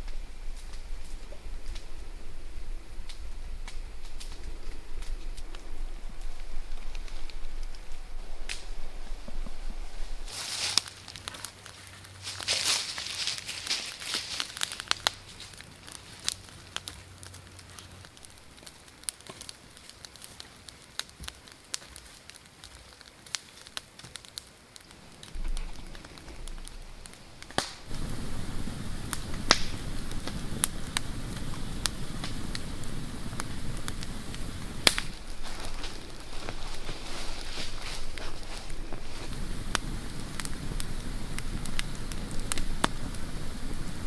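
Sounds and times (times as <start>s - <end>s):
low rumble: 0.0s - 10.3s, 25.0s - 44.0s
campfire crackling and popping: 0.0s - 44.0s.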